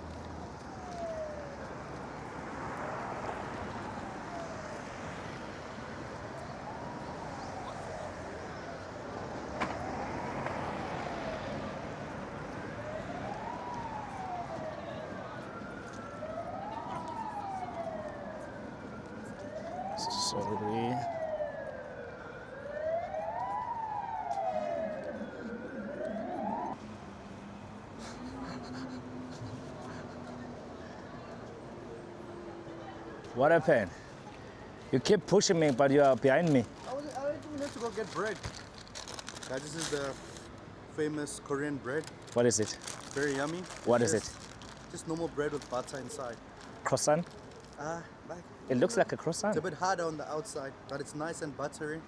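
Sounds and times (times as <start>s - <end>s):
street traffic noise: 0.0s - 52.0s
emergency vehicle siren wailing: 0.2s - 41.2s, 42.1s - 49.1s
siren wailing: 12.5s - 26.8s.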